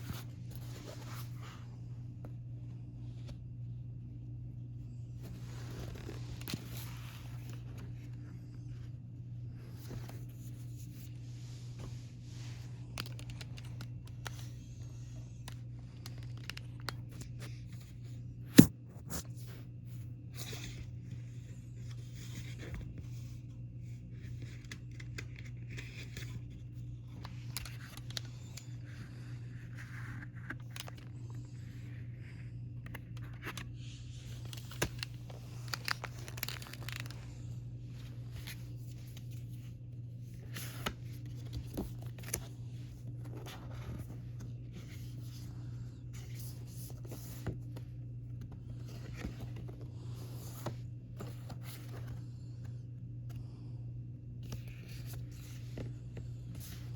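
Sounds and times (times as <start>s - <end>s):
steady low hum: 0.0s - 56.9s
packaging tearing and rustling: 34.2s - 37.4s.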